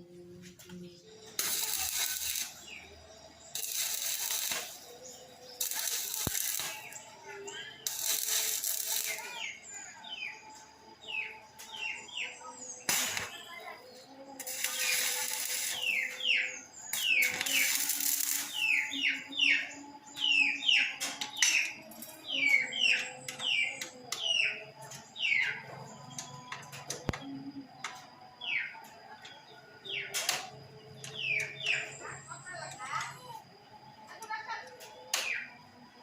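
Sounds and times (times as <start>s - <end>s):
short bursts of hissing: 14.4s - 16.0s.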